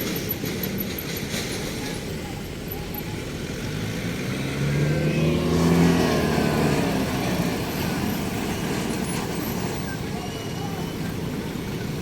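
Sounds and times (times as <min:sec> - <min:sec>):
traffic noise: 0:00.0 - 0:12.0
vehicle engine passing by: 0:03.2 - 0:09.9.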